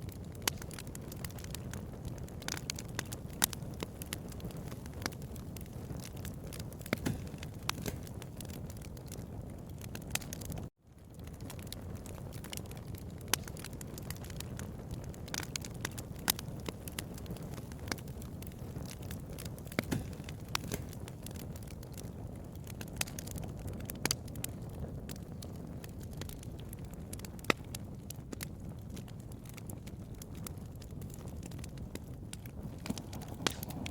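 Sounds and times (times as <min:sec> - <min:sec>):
flames rumbling: 0:00.0 - 0:33.9
wood crackling: 0:00.0 - 0:33.9
sharp pops: 0:06.8 - 0:08.1, 0:19.7 - 0:21.0, 0:32.6 - 0:33.9.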